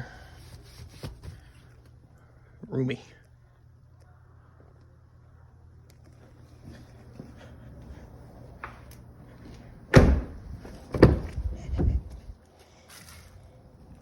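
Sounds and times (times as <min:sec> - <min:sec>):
truck door thudding shut: 0:09.9 - 0:12.1.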